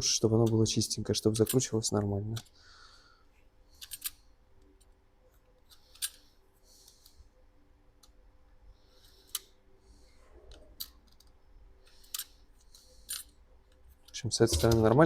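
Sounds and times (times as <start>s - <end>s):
sharp metallic clicks: 14.5s - 15.0s.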